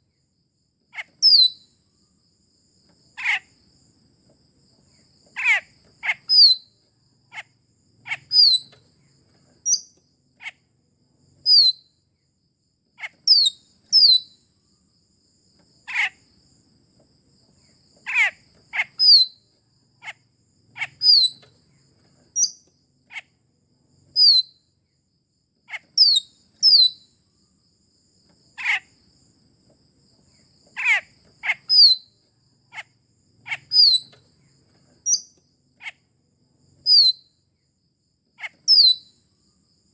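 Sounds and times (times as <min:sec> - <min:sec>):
myna calling: 0:30.8 - 0:31.7.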